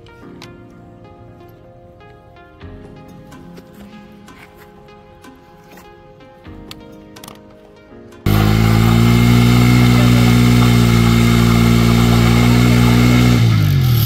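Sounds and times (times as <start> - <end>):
motorcycle engine revving high: 8.3 - 14.0
tyre spinning in burnout: 8.3 - 14.0.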